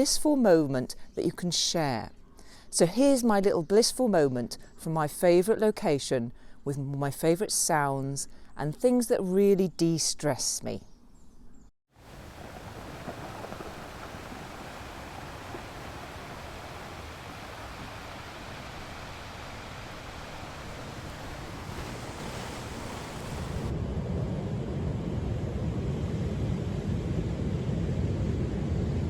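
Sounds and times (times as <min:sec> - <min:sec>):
sea waves washing on shore: 0:12.0 - 0:23.7
wind buffeting microphone: 0:12.0 - 0:29.0.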